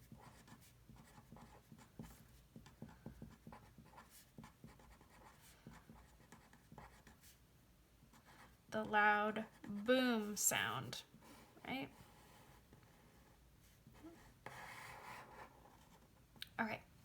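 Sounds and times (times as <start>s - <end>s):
pen scratching on paper: 0.0s - 7.4s, 11.9s - 16.1s.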